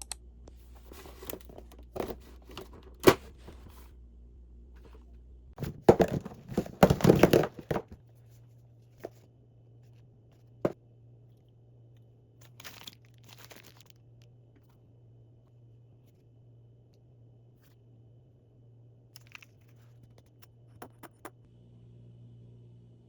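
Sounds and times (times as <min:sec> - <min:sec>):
crinkling and rustling: 0:00.5 - 0:03.9, 0:04.8 - 0:09.3, 0:12.4 - 0:14.0.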